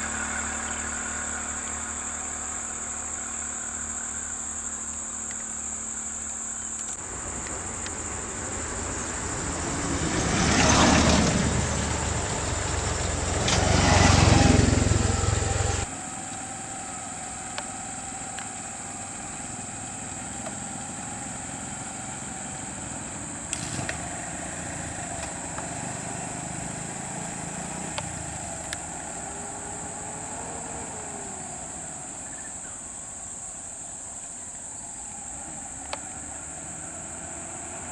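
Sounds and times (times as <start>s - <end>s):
vehicle engine revving: 6.4s - 32.9s, 34.7s - 37.9s.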